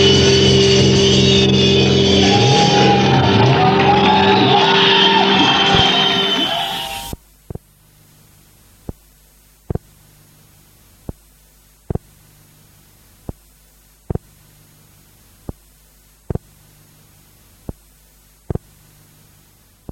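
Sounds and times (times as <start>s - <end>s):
electrical hum: 4.3s - 19.9s
low rhythmic thuds: 8.8s - 10.0s, 11.0s - 12.2s, 13.2s - 14.4s, 16.3s - 16.6s, 17.6s - 18.8s.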